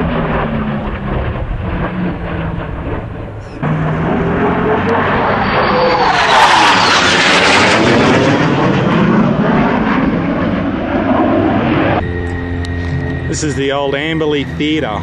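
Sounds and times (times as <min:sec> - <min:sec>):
jet aircraft flying past: 0:00.0 - 0:15.0.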